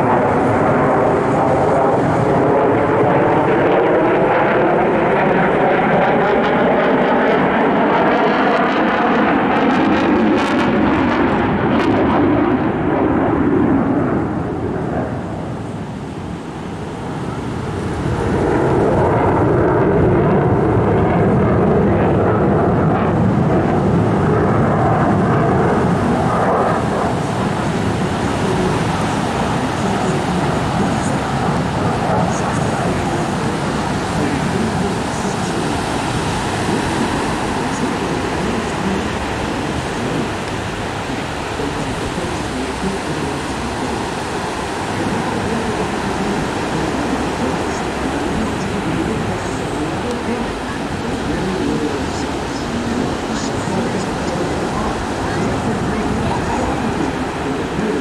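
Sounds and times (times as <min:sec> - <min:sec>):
airplane flying past: 0:00.0 - 0:58.0.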